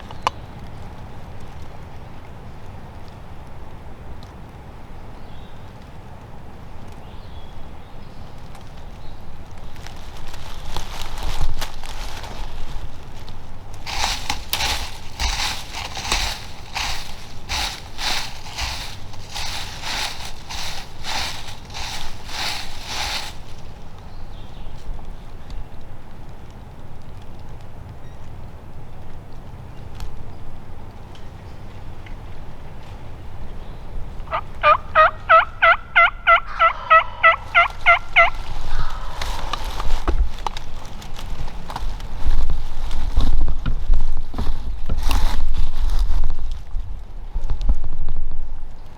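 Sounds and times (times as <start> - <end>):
wind rumbling on microphone: 0.0 - 48.9
footsteps crunching through dry leaves: 8.6 - 25.2, 36.5 - 47.0
turkey yelping: 34.3 - 39.5.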